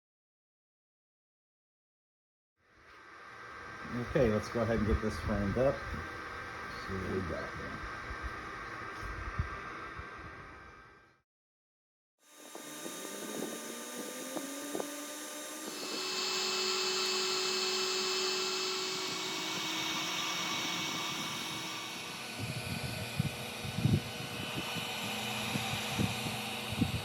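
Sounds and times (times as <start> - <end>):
hiss of air and fan noise: 2.8 - 11.0, 12.4 - 27.0
laser cutter motors gliding tones: 12.3 - 27.0.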